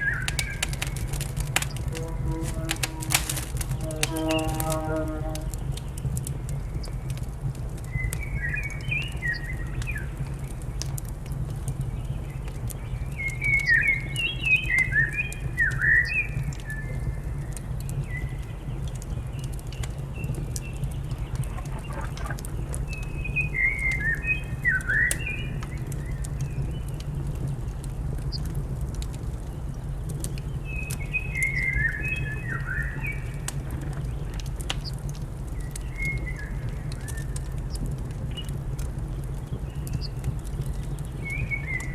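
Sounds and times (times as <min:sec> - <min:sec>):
wood fire crackles: 0:00.0 - 0:41.9
wood fire rumble: 0:00.0 - 0:41.9.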